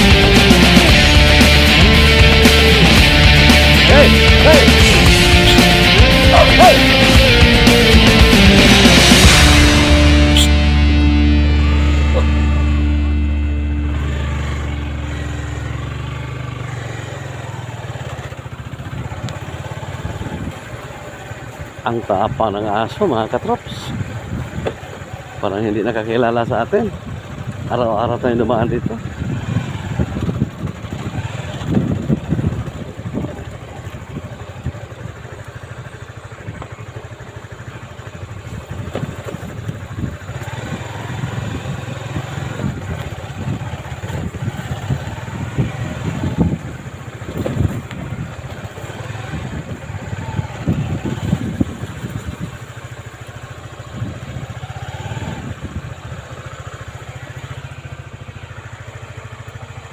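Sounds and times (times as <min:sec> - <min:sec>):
motorcycle engine running: 0:00.0 - 0:59.9
wind buffeting microphone: 0:28.7 - 0:35.2, 0:38.3 - 0:52.9, 0:53.7 - 0:56.2.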